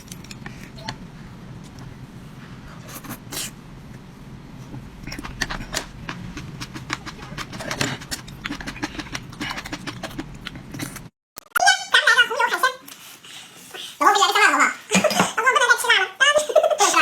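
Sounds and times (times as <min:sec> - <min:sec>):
low steady hum: 0:00.0 - 0:11.1
person chewing: 0:05.0 - 0:11.1.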